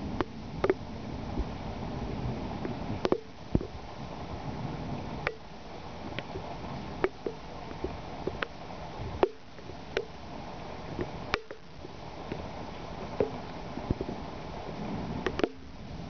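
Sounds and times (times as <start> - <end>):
steady rain: 0.0 - 16.0
sharp drips ticking: 5.2 - 5.5, 9.2 - 10.2.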